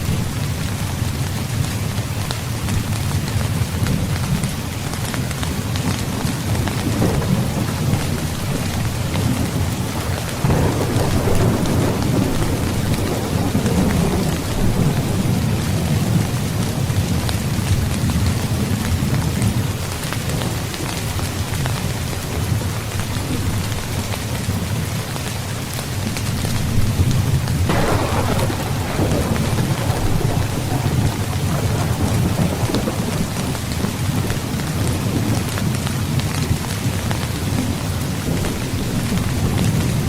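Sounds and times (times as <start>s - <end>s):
heavy rain: 0.0s - 40.0s
rolling thunder: 6.0s - 18.8s, 26.7s - 36.7s
sharp thunderclap: 6.6s - 16.5s, 26.9s - 35.5s.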